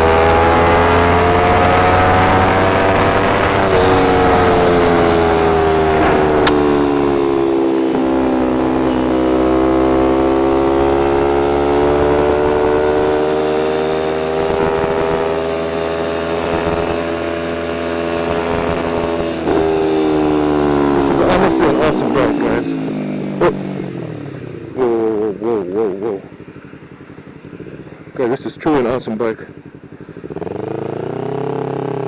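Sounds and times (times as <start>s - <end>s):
motorcycle engine running: 0.0s - 32.0s
single sharp click: 6.0s - 7.1s.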